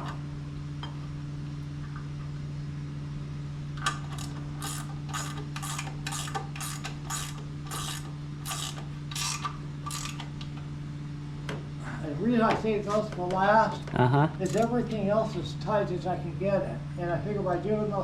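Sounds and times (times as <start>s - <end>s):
steady low hum: 0.0s - 18.0s
wrench ratcheting: 3.8s - 10.3s, 14.4s - 14.8s.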